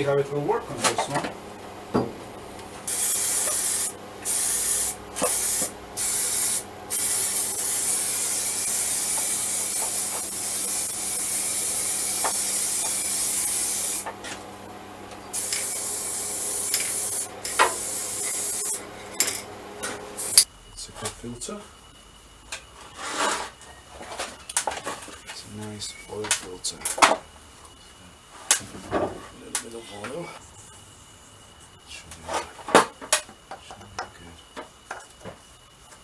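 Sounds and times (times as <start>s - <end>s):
spray paint can hissing: 2.9s - 14.1s, 15.3s - 18.8s, 20.2s - 20.5s.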